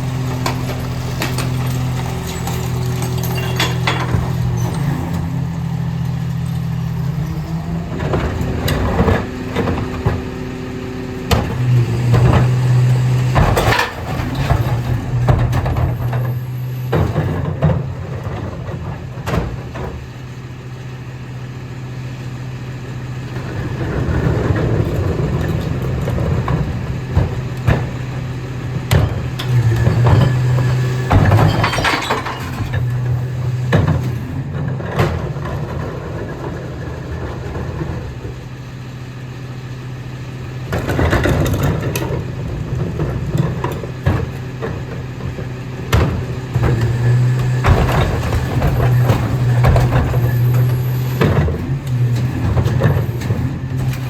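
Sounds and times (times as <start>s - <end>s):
garbage truck idling: 0.0s - 54.0s
clattering and knocks: 0.4s - 5.2s, 28.7s - 38.1s, 40.7s - 54.0s.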